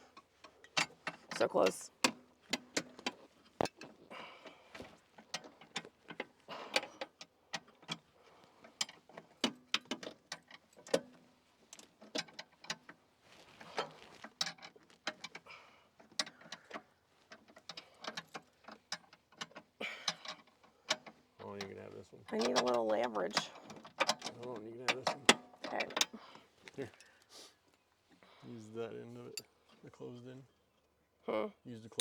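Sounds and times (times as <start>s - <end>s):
metal wrenches clinking: 16.1s - 26.1s.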